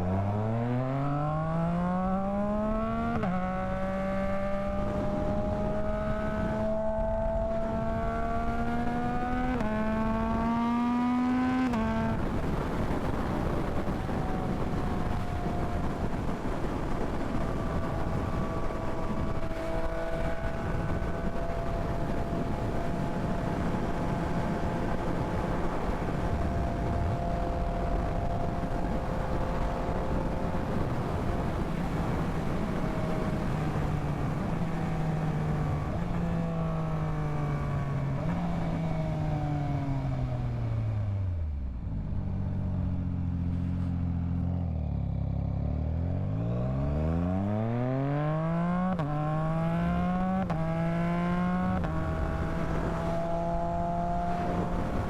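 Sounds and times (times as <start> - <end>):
motorcycle engine: 0.0 - 55.0
wind rush: 4.6 - 38.8, 48.9 - 55.0.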